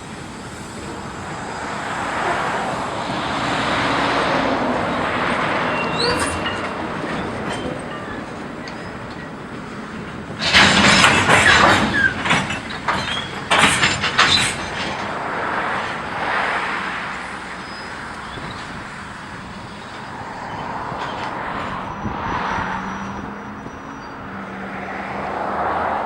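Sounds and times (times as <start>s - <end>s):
freight cars rolling: 0.0s - 26.0s
brief squeals: 5.6s - 9.2s, 17.6s - 18.8s, 19.7s - 24.3s
metallic clanks and bangs: 10.0s - 15.2s.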